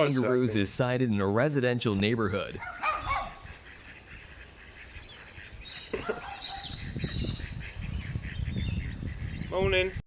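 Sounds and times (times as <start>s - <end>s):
faint outdoor background noise: 0.0s - 10.0s
birds chirping: 2.0s - 10.0s.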